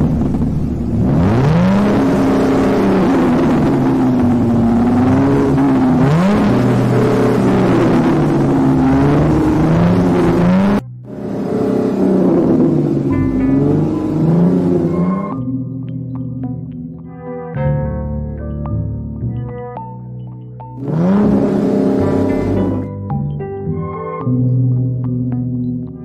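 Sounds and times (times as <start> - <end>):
sports car engine revving: 0.0 - 17.4, 20.8 - 23.0.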